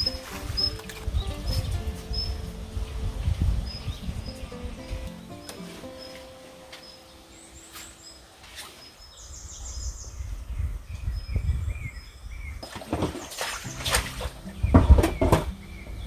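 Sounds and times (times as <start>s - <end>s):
wind on microphone: 0.0s - 5.4s, 8.9s - 16.0s
background music note: 0.0s - 8.4s
small birds chirping: 0.0s - 16.0s.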